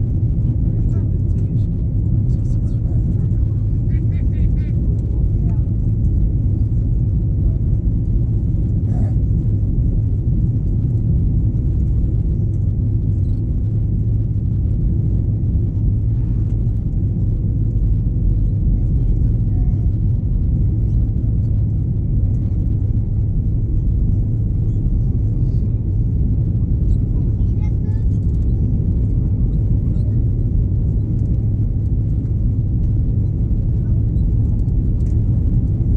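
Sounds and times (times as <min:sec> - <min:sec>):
airplane cabin rumble: 0:00.0 - 0:35.9.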